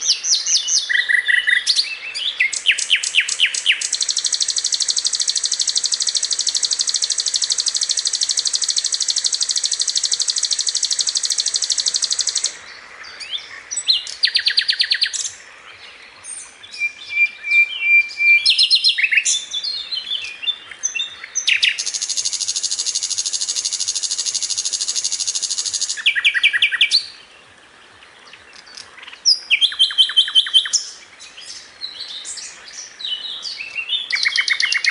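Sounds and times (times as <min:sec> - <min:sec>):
flycatcher singing high trills: 0:02.4 - 0:12.6, 0:21.4 - 0:27.0.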